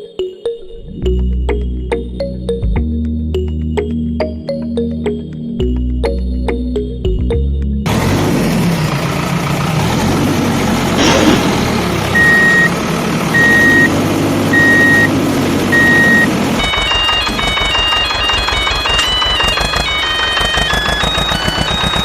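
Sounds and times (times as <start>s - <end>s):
heavy vehicle engine running: 7.8s - 22.0s
reversing alarm beeping: 12.1s - 22.0s.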